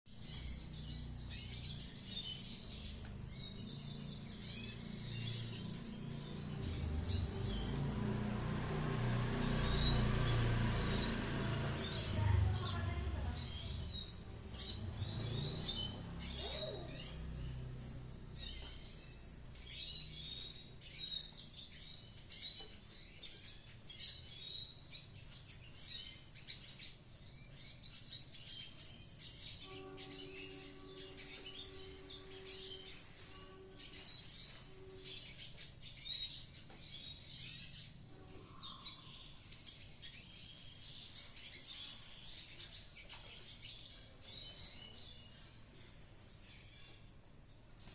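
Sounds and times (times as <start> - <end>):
birds twittering: 0.0 - 47.9.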